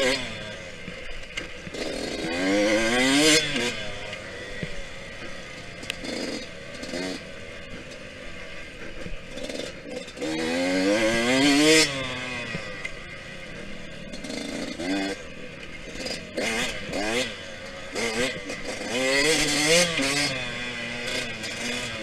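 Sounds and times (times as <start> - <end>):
two-stroke engine revving: 0.0 - 22.0.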